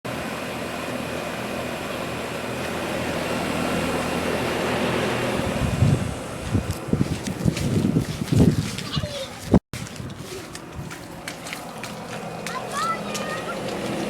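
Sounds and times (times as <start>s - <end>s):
condenser fan whoosh: 0.1s - 8.6s
air conditioner compressor hum: 0.1s - 8.7s, 9.8s - 14.0s.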